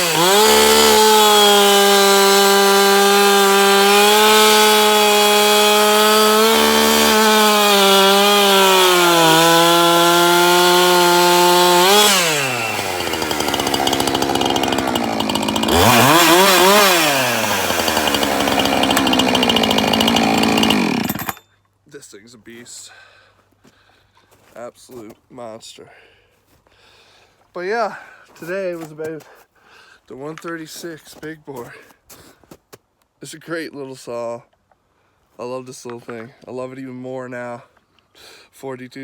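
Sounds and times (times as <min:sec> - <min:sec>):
chainsaw cutting wood: 0:00.0 - 0:21.4
chainsaw idling: 0:00.0 - 0:21.4.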